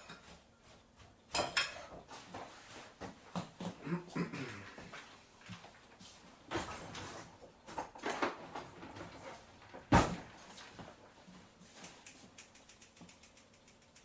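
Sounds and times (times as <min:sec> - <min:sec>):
kitchen items clattering: 0:01.3 - 0:02.1, 0:06.5 - 0:11.0.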